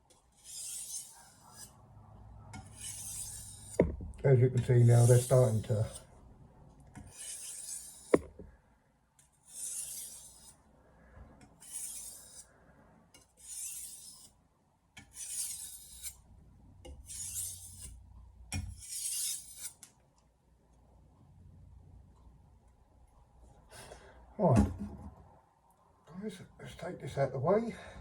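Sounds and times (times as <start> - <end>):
knife scraping on whetstone: 0.3 - 1.8, 2.6 - 3.8, 4.8 - 6.1, 7.0 - 8.4, 9.4 - 10.6, 11.6 - 12.5, 13.2 - 14.4, 15.0 - 16.2, 16.9 - 19.8
sharp knock: 8.1 - 8.5.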